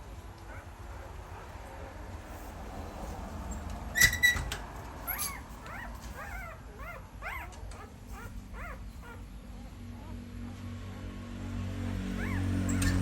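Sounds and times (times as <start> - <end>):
puppies whimpering: 0.4 - 1.6, 5.0 - 11.0, 12.2 - 13.0
puppies yelping: 0.4 - 2.0, 5.0 - 11.2, 11.8 - 13.0.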